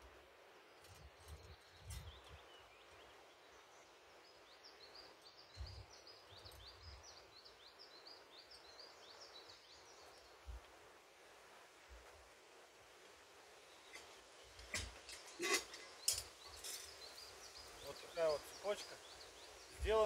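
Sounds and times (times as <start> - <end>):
low steady hiss: 0.0 - 20.0
small bird chirping: 0.8 - 10.6, 13.6 - 20.0
soft low thumps: 5.5 - 5.9.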